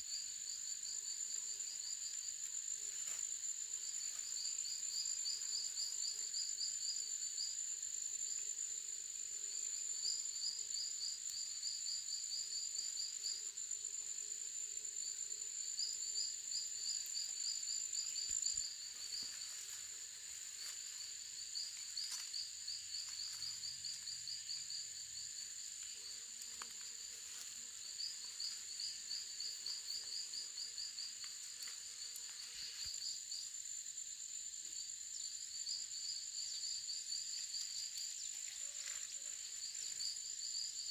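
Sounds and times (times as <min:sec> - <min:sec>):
insect high whine: 0:00.0 - 0:40.9.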